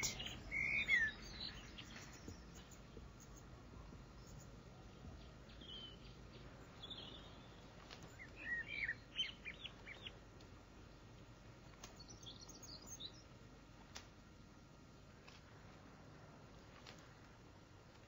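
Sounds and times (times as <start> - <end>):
small birds chirping: 0.0 - 14.1
low background hum: 0.0 - 18.0.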